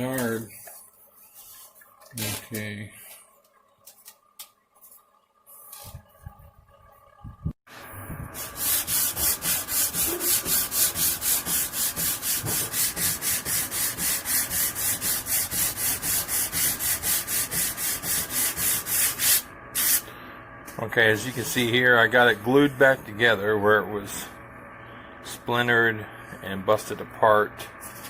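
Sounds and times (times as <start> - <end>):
sandpaper rubbing on wood: 8.4 - 20.0.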